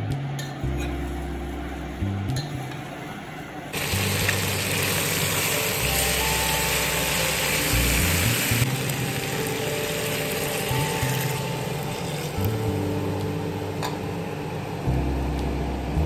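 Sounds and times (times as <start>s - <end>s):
curry sizzling in a pot: 3.8s - 12.9s.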